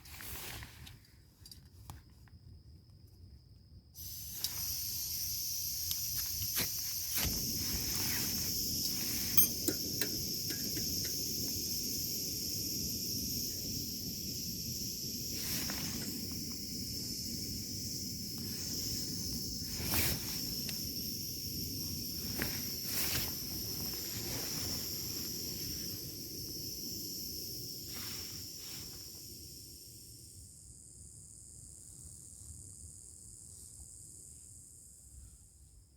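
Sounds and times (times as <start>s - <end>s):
insects chorus: 0.0s - 35.9s.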